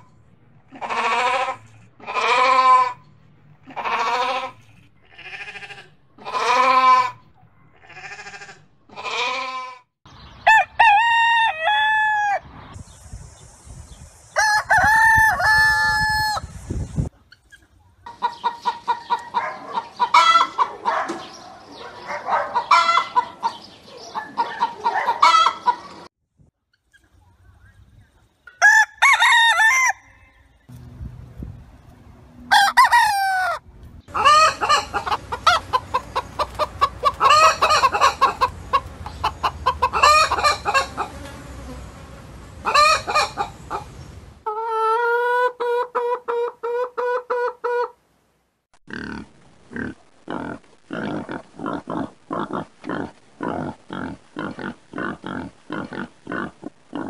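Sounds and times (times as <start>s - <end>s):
hens clucking: 0.7s - 3.0s, 3.6s - 9.5s, 17.4s - 21.2s, 22.1s - 26.1s, 32.5s - 41.7s, 42.6s - 48.0s
rooster crowing: 10.5s - 12.4s, 14.4s - 16.5s, 28.6s - 30.4s, 32.5s - 33.6s.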